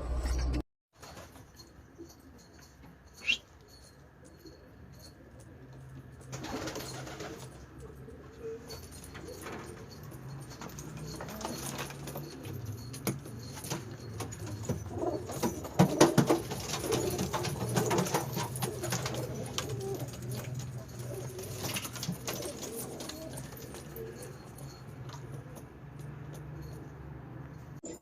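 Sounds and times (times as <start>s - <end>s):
pigeons cooing: 6.4s - 25.7s.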